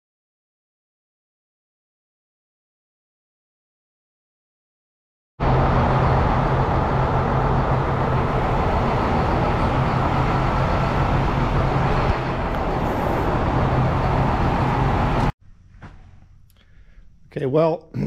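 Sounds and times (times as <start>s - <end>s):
sawmill running: 5.4s - 15.3s.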